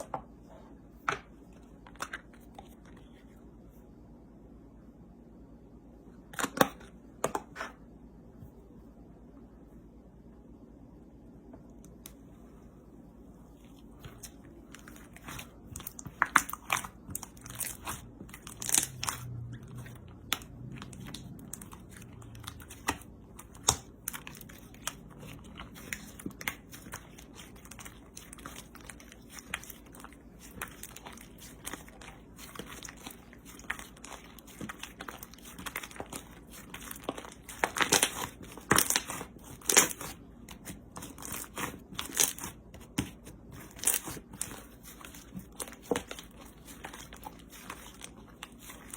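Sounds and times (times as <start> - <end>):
slime crunchy crackles: 14.1 - 48.9.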